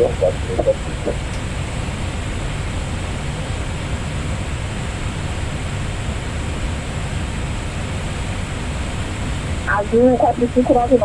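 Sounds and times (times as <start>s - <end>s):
aircraft cockpit rushing noise: 0.0s - 5.3s.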